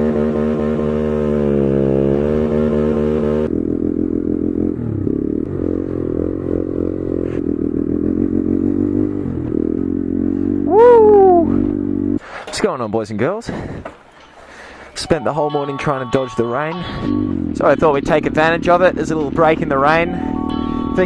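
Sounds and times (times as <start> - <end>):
motorcycle engine running: 0.0 - 12.6, 16.4 - 21.0.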